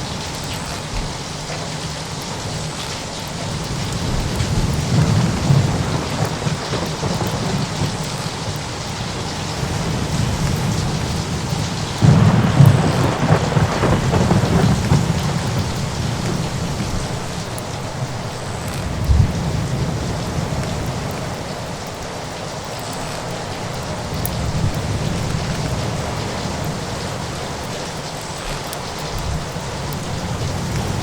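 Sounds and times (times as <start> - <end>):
rain hissing: 0.0 - 31.0
thunder rumbling: 0.0 - 31.0
loud thunder peal: 9.1 - 17.5.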